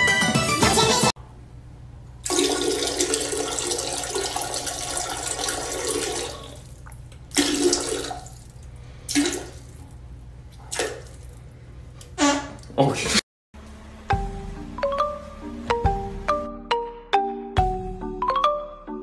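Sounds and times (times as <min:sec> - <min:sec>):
toilet flushing: 0:02.2 - 0:10.0.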